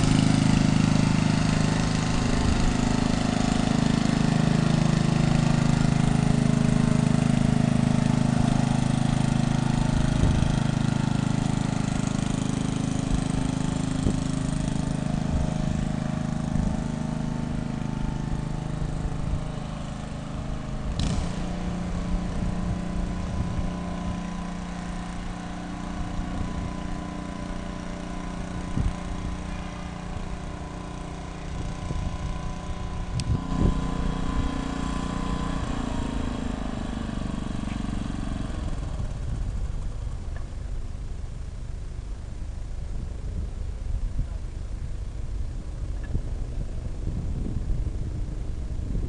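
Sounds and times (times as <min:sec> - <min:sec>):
aircraft engines humming: 0:00.0 - 0:49.0
low rumble: 0:38.8 - 0:49.0.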